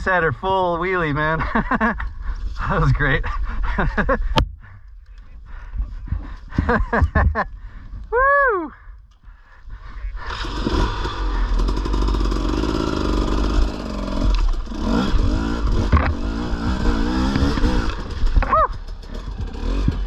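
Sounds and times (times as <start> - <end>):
dirt bike engine revving: 10.2 - 20.0.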